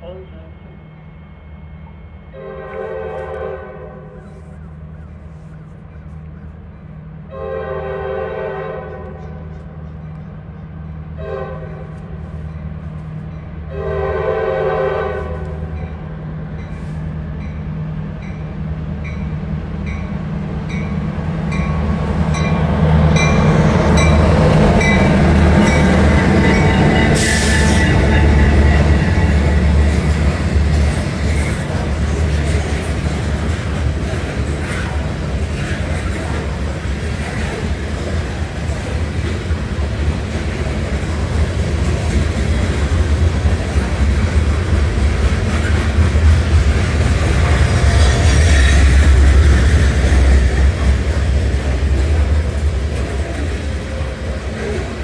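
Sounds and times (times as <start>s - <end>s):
locomotive engine rumble: 0.0s - 55.0s
train horn blasts: 2.2s - 4.4s, 7.3s - 9.5s, 11.1s - 12.1s, 13.7s - 15.8s, 24.8s - 29.8s
crossing bell ringing: 15.7s - 29.8s
freight cars rolling: 21.4s - 55.0s.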